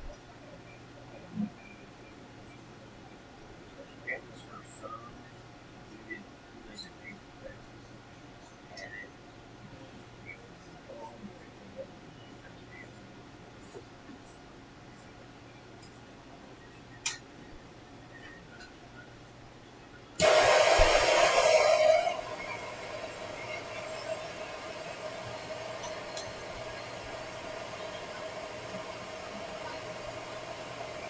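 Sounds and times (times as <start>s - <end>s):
hissing air rush: 20.2s - 31.0s
steady hum: 20.2s - 31.0s.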